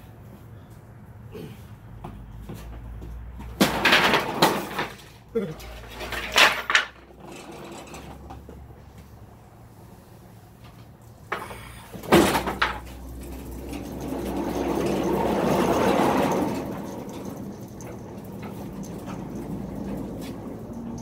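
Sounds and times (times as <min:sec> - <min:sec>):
heavy frame scraping and sliding: 0:11.4 - 0:21.0.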